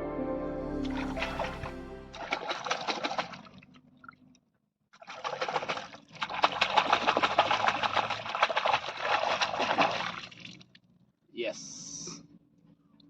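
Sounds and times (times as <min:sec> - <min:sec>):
river water splashing: 0:00.9 - 0:03.6, 0:05.0 - 0:10.4.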